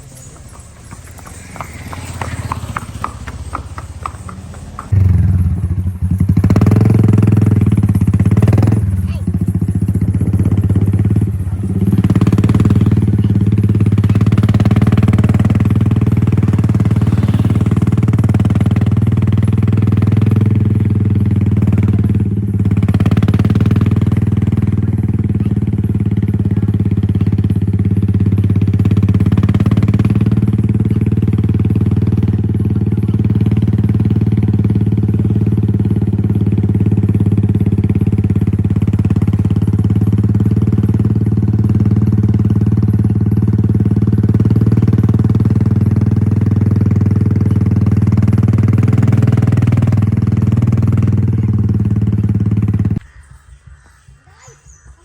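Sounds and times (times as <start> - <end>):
loud steady engine hum: 0.0 - 53.0.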